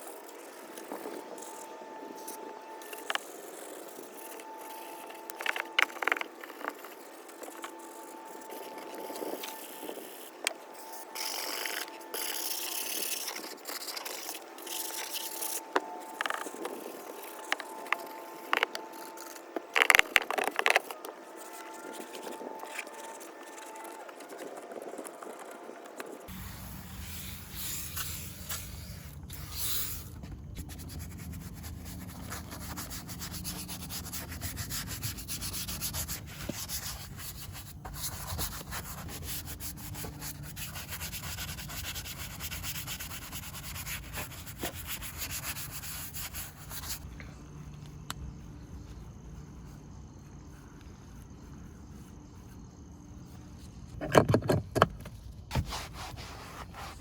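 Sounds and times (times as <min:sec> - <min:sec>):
brush scrubbing a surface: 0:30.6 - 0:47.0, 0:55.5 - 0:57.0.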